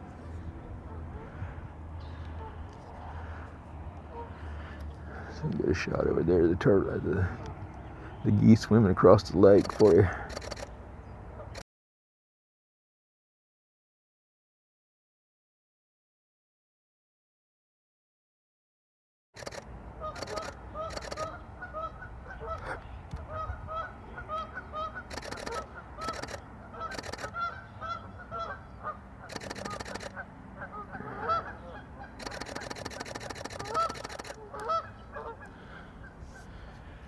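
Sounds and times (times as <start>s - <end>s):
geese honking: 4.1s - 5.3s, 20.0s - 36.8s.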